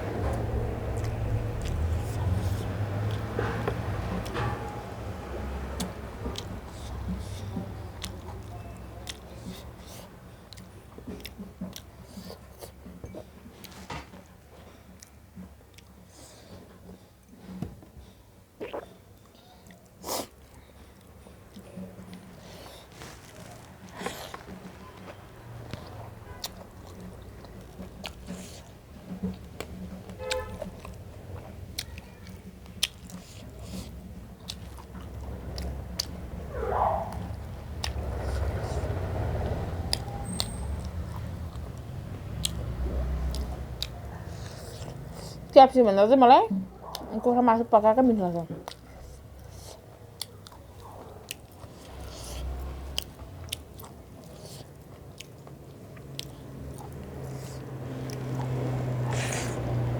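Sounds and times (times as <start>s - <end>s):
person chewing: 0.3s - 4.3s, 5.6s - 14.0s, 14.8s - 16.6s, 18.6s - 45.5s, 48.6s - 59.9s
mouth clicks and smacks: 21.5s - 45.5s, 48.6s - 59.9s.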